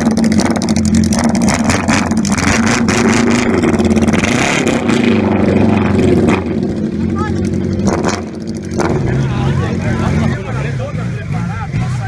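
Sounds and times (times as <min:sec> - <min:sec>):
motorcycle engine idling: 0:00.0 - 0:02.5, 0:05.9 - 0:12.0.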